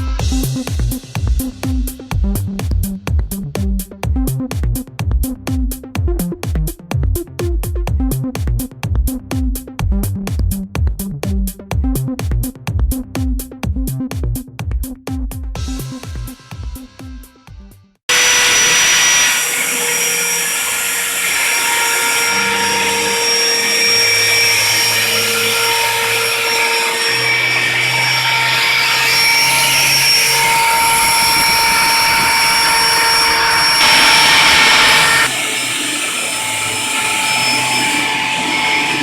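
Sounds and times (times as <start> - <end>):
low hum shifting pitch: 18.1 - 39.0
router spindle whining: 18.1 - 39.0.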